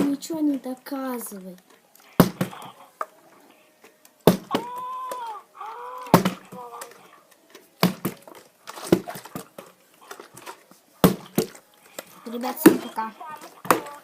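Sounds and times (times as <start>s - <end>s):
child making wordless sounds: 12.2s - 14.0s.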